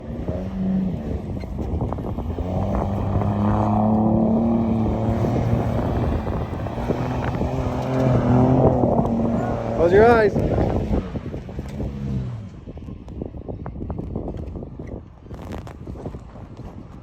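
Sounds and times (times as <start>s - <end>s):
pickup truck engine revving: 0.0s - 12.6s.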